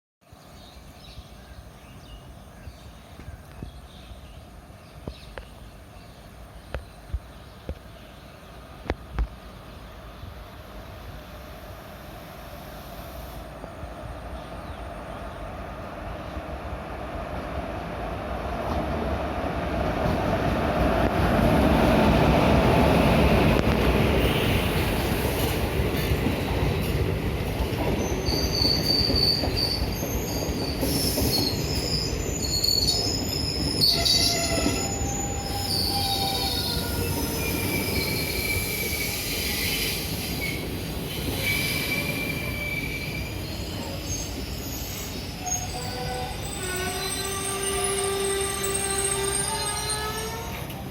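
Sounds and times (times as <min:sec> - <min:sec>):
train wheels rumbling: 0:08.6 - 0:50.9
train brakes squealing: 0:24.2 - 0:25.6, 0:28.0 - 0:50.8.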